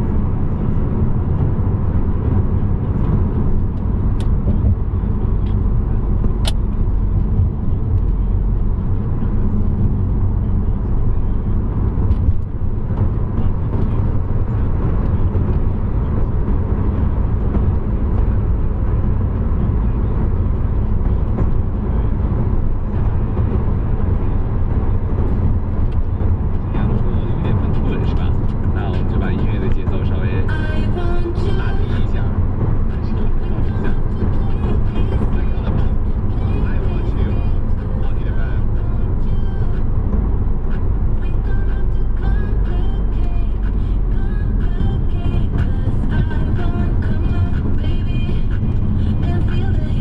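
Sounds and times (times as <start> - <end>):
car engine and road rumble: 0.0 - 50.0.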